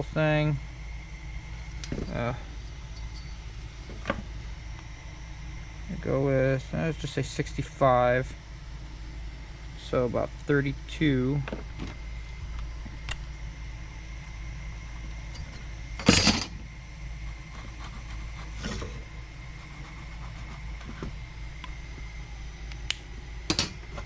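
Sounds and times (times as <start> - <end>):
low background hum: 0.0 - 24.0
tools clattering on workbench: 15.4 - 16.5, 23.5 - 23.8.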